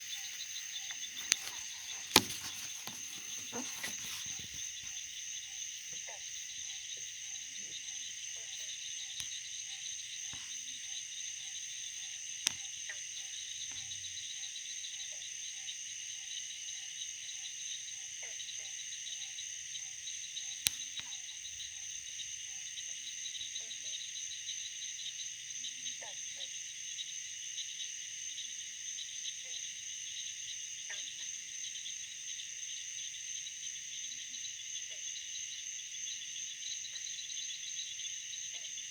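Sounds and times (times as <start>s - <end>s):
sharp clicks: 0.0s - 5.0s
crickets chirping: 0.0s - 38.9s
low pulsed insect call: 0.0s - 38.9s.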